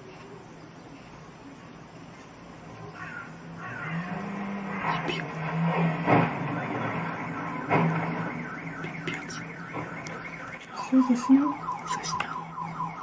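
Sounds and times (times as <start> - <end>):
car alarm chirping: 6.4 - 13.0.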